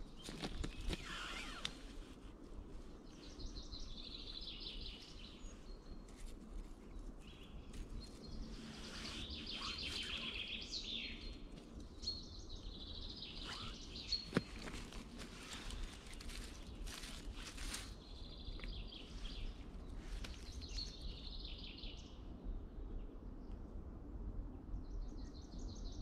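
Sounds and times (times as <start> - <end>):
songbird trilling: 0.3 - 2.0, 8.4 - 11.4, 12.0 - 14.8.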